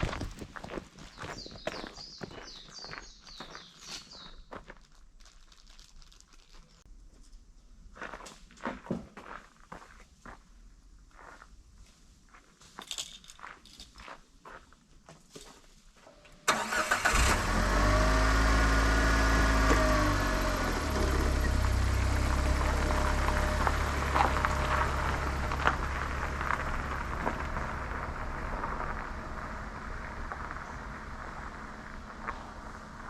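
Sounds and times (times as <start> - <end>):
engine cranking: 16.5 - 26.6
van engine idling: 16.5 - 33.0.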